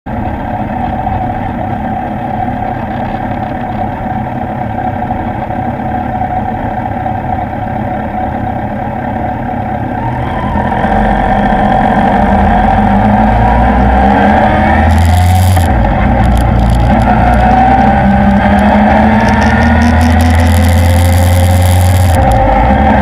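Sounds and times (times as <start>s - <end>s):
motorcycle engine idling: 0.1s - 11.0s.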